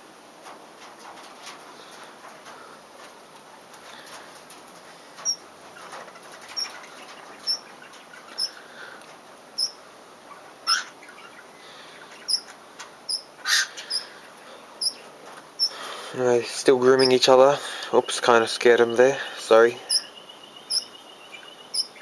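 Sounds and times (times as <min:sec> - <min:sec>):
harsh bird calls: 0:03.8 - 0:22.0
cockatiel chirping: 0:07.4 - 0:07.7, 0:09.6 - 0:09.8, 0:10.6 - 0:11.4, 0:12.2 - 0:12.5, 0:14.8 - 0:15.0, 0:19.9 - 0:22.0.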